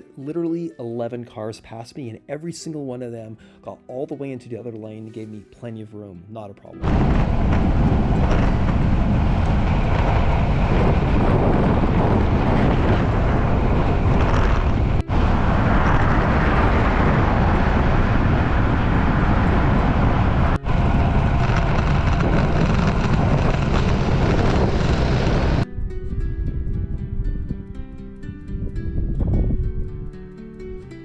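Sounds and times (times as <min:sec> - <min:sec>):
wind rushing over microphone: 0:06.8 - 0:30.9.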